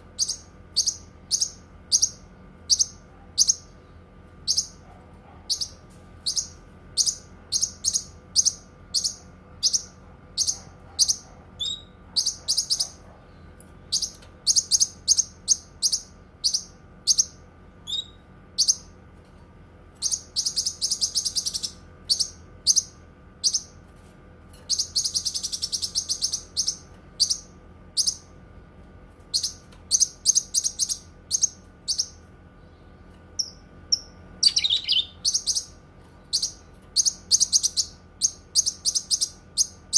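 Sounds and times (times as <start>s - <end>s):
bird rapid trills: 33.4s - 35.7s
bird singing high chirps: 33.4s - 39.8s.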